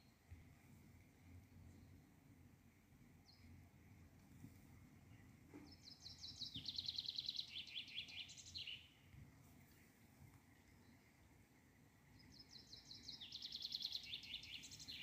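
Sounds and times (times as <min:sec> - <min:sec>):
faint outdoor background: 0:00.0 - 0:15.0
songbird trilling: 0:05.7 - 0:08.9, 0:12.4 - 0:15.0.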